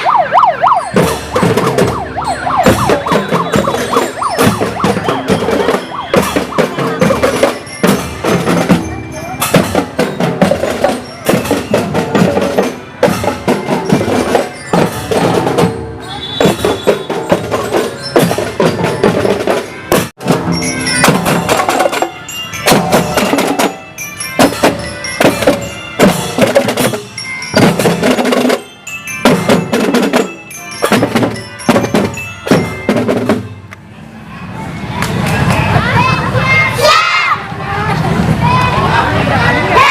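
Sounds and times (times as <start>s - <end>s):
snare and bass drums beating: 0.1s - 23.8s
glockenspiel melody: 0.1s - 33.8s.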